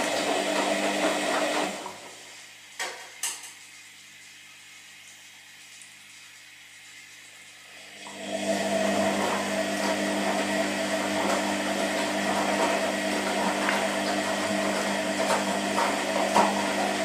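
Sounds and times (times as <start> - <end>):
washing machine motor hum: 0.0 - 2.7, 6.6 - 17.0.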